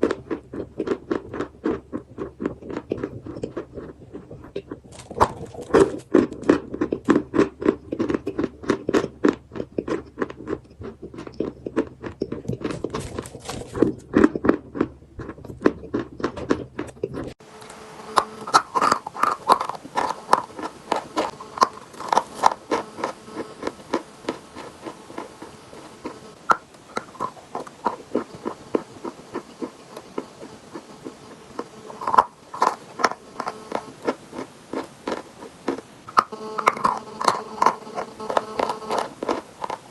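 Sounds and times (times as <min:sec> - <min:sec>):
chalk crunching when chewed: 0:00.0 - 0:39.9.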